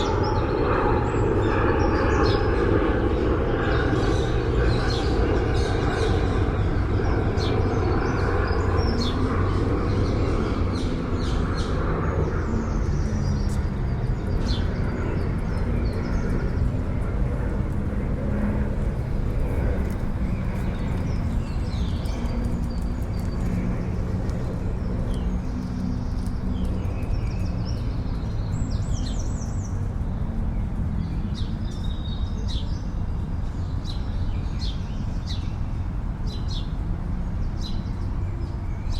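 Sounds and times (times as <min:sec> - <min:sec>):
city traffic rumble: 0:00.0 - 0:38.9.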